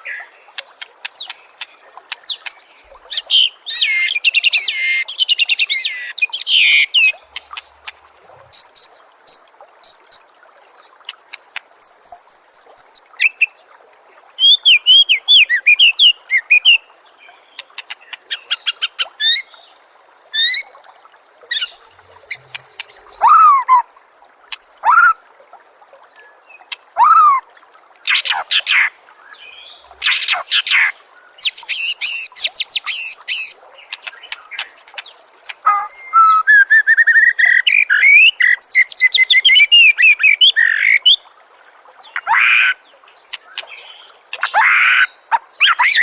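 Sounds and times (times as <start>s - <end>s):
songbird singing clicks and whistles: 0.0s - 4.8s, 5.4s - 8.0s, 11.0s - 13.4s, 17.6s - 19.5s, 21.5s - 23.2s, 31.4s - 41.0s, 43.2s - 46.0s.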